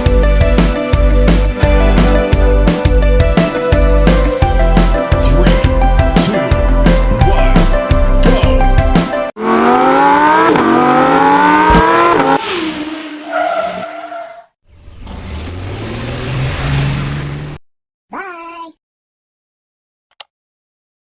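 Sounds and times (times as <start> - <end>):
music: 0.0 - 9.4
race car engine accelerating: 9.4 - 13.6.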